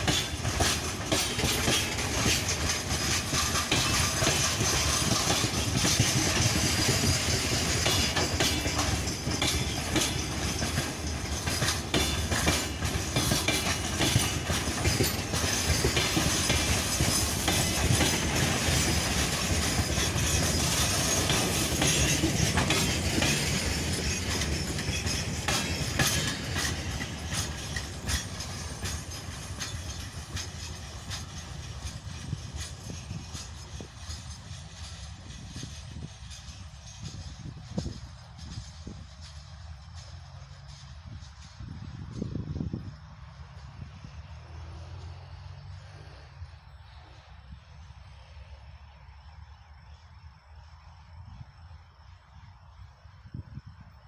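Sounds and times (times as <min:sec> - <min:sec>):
train wheels clicking over rail joints: 0:00.0 - 0:54.0.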